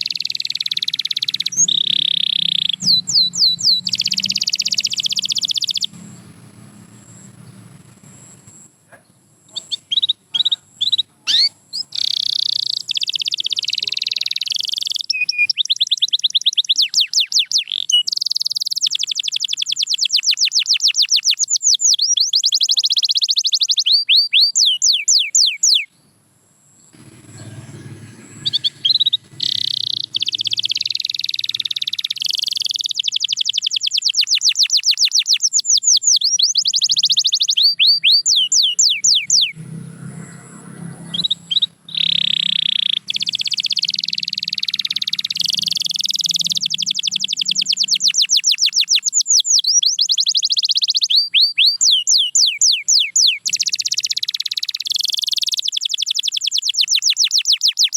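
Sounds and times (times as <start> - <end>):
canary singing trills: 0.0 - 57.9.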